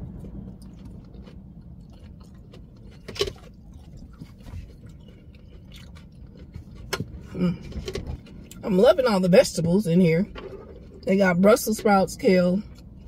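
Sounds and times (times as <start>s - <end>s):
person chewing salad: 0.0s - 8.6s, 12.6s - 13.0s.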